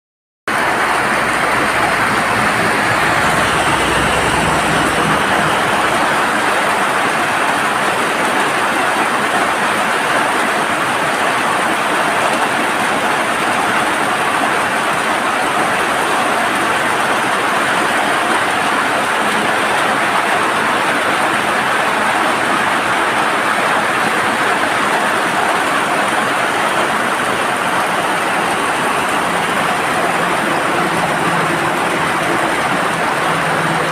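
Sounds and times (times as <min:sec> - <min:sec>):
heavy rain pouring: 0:00.5 - 0:33.9.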